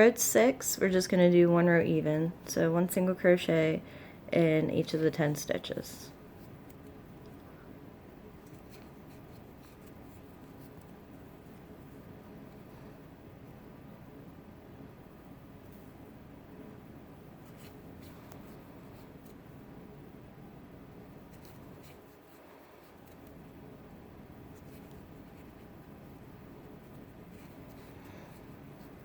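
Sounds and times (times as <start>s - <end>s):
low background hum: 0.0s - 29.0s
crochet hook scratching yarn: 8.4s - 13.0s, 17.3s - 19.6s, 21.1s - 23.6s, 24.4s - 29.0s.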